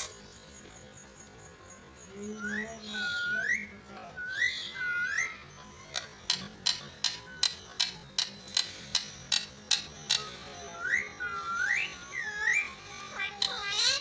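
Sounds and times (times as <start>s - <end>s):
parrot whistled call: 2.4s - 5.4s, 10.7s - 12.8s.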